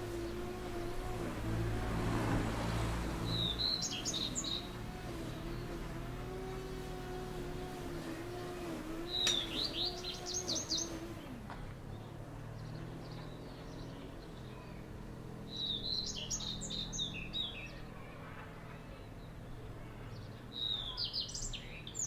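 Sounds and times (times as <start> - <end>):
low steady hum: 0.0 - 15.6
songbird twittering: 3.1 - 7.6, 8.4 - 17.9, 20.1 - 22.0.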